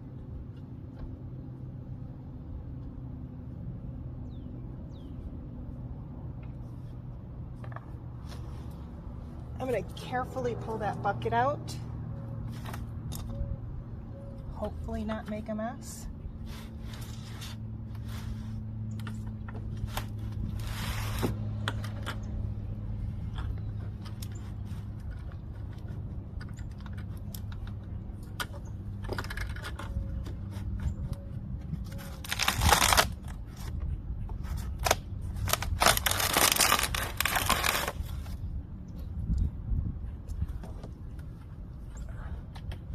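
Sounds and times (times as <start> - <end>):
scraping and clicking handling noises: 23.2 - 38.4.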